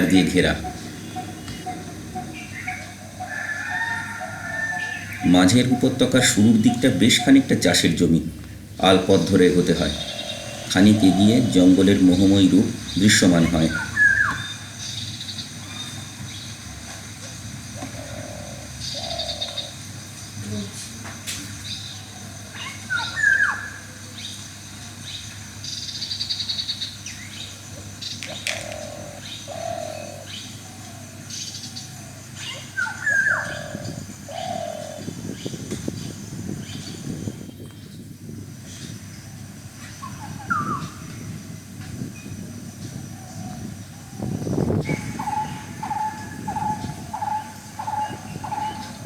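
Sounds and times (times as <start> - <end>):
bird repeated notes: 0.0 - 3.2, 5.0 - 8.0
rapid bird trill: 0.0 - 16.6, 43.0 - 49.0
low outdoor rumble: 0.0 - 19.0
birds chirping: 0.0 - 49.0.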